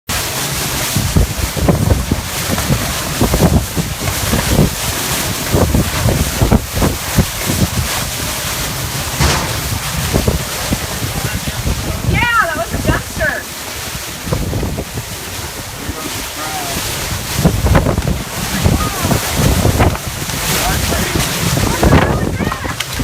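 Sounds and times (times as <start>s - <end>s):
storm wind buffeting microphone: 0.6s - 23.0s.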